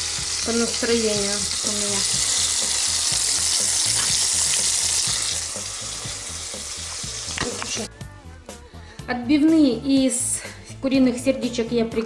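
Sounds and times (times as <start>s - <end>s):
food sizzling in hot oil: 0.0s - 7.9s.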